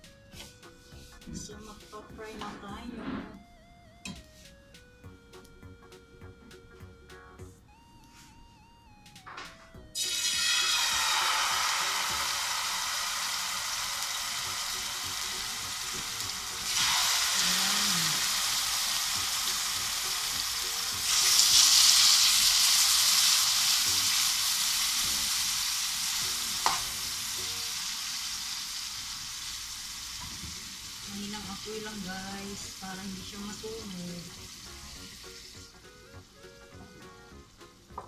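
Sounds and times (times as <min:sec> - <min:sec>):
chicken sizzling in a frying pan: 0:10.0 - 0:36.2.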